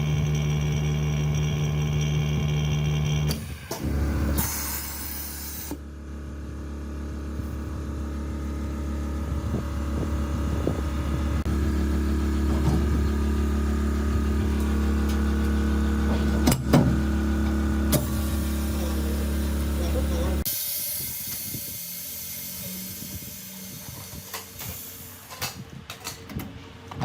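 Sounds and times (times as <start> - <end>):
mechanical hum with tones: 0.0 - 27.0.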